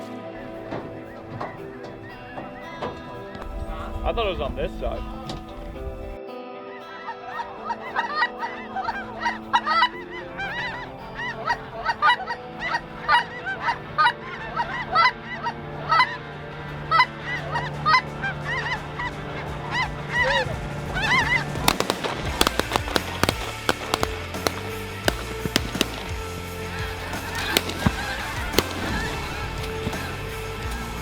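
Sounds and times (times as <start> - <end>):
quiet background music: 0.0 - 31.0
geese honking: 8.8 - 31.0
shotgun shots: 21.3 - 30.6.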